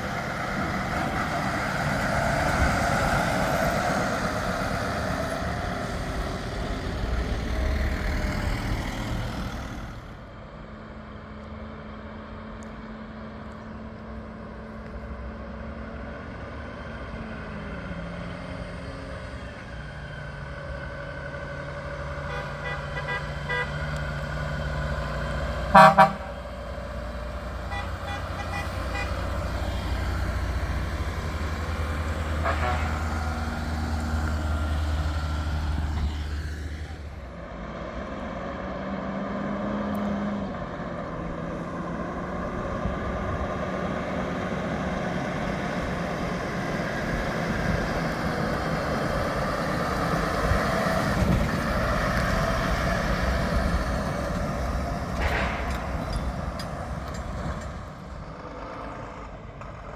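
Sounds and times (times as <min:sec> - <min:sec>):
heavy trucks driving past: 0:00.0 - 0:59.9
light traffic noise: 0:00.0 - 0:59.9
horn toots: 0:22.2 - 0:23.9, 0:25.6 - 0:29.6, 0:32.2 - 0:33.5.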